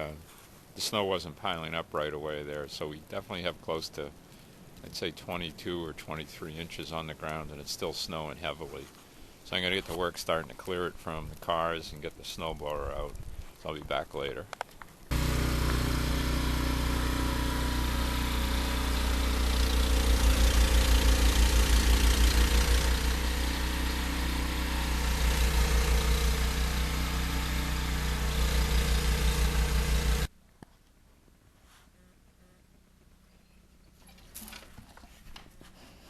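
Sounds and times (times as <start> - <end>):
snowblower engine running: 15.1 - 30.3.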